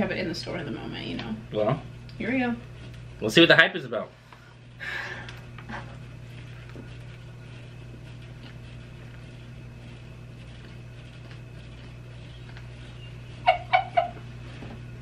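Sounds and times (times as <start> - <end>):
low room hum: 0.0 - 15.0
people chewing sandwiches: 4.4 - 12.8.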